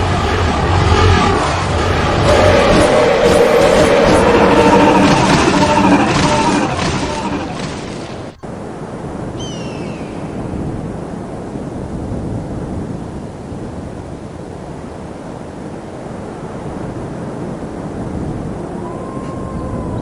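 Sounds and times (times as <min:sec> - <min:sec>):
steady rushing noise: 0:00.0 - 0:09.4.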